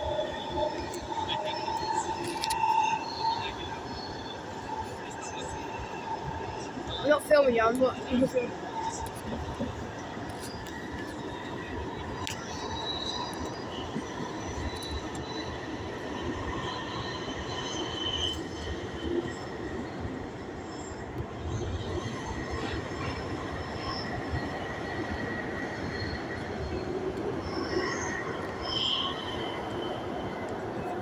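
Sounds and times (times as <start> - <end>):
train rumble: 0.0 - 31.0
wheel squeals: 25.9 - 30.8.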